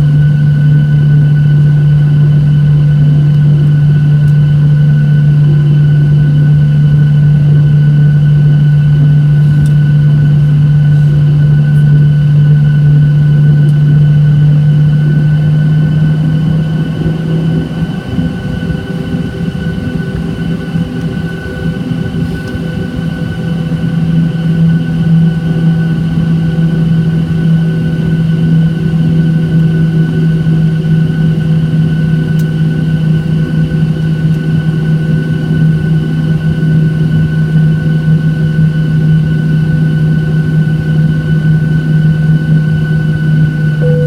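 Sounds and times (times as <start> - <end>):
jet engine and airflow drone: 0.0 - 44.0
faint steady whine: 43.5 - 44.0.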